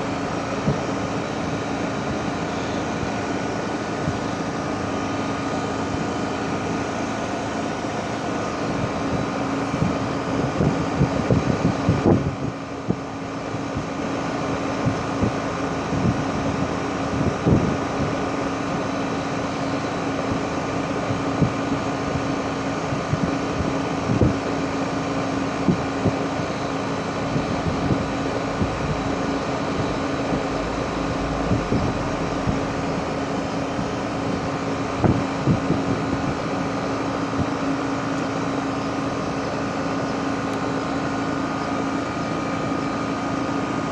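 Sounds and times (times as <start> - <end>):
heat pump humming: 0.0 - 43.9.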